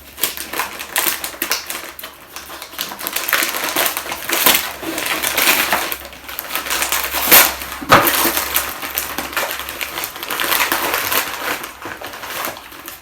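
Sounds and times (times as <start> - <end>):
paper ripping: 0.0 - 13.0
wrapping paper crackling rustle: 0.0 - 13.0.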